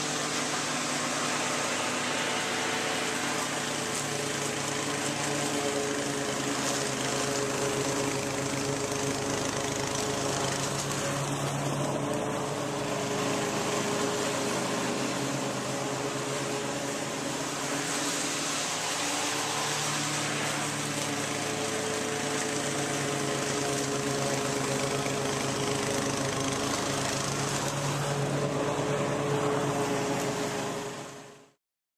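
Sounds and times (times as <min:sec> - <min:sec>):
engine running: 0:00.0 - 0:31.5.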